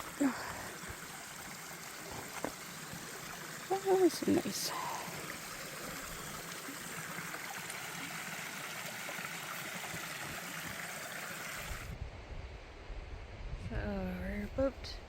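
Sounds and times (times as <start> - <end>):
creek flowing: 0.0 - 11.9.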